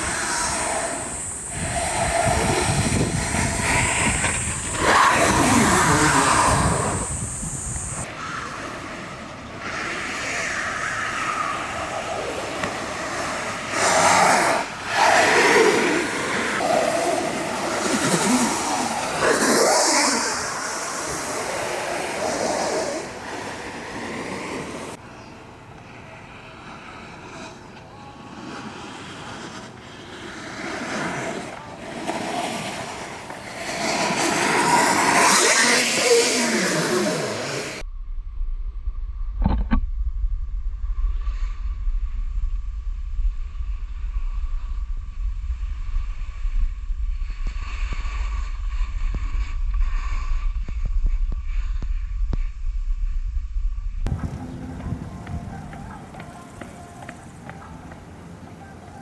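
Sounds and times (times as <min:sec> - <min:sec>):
snowboard scraping over snow: 0:00.0 - 0:08.0, 0:12.3 - 0:25.0, 0:26.4 - 0:37.8, 0:54.1 - 0:59.0
wind on microphone: 0:00.0 - 0:09.2, 0:28.6 - 0:59.0.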